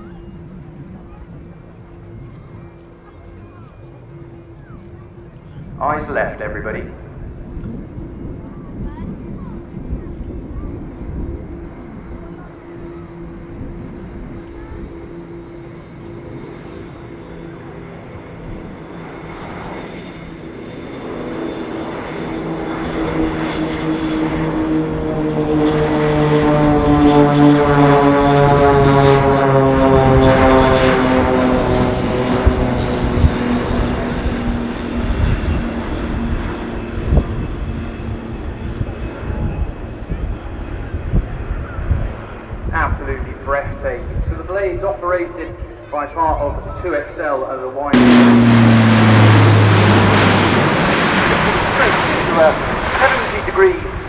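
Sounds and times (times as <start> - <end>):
turboprop aircraft passing: 0.0 - 54.0.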